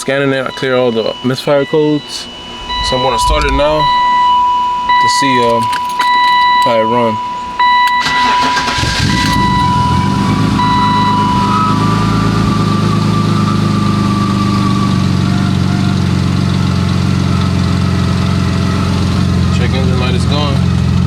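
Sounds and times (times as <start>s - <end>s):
car engine idling: 0.0s - 21.0s
high electronic beep: 0.1s - 12.4s.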